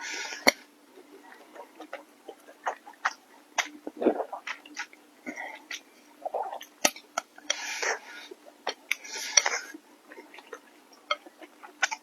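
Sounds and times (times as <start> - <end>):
wet mouth sounds: 1.5 - 7.0.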